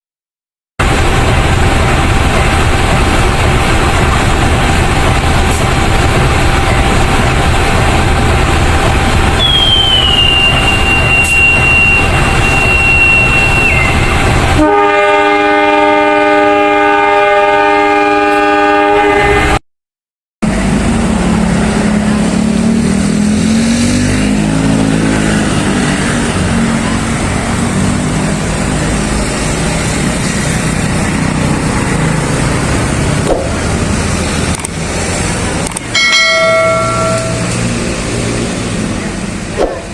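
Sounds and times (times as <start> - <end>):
locomotive engine running: 0.8 - 15.0, 20.4 - 39.9
high gliding squeal: 9.4 - 14.3, 36.0 - 37.9
locomotive horn: 9.4 - 19.6.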